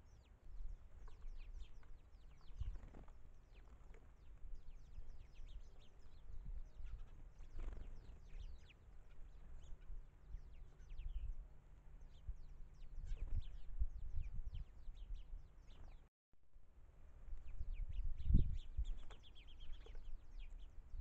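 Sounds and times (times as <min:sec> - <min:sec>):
small birds chirping: 0:00.0 - 0:16.1, 0:17.2 - 0:21.0
wind on microphone: 0:09.5 - 0:11.5, 0:12.1 - 0:16.0, 0:17.2 - 0:21.0.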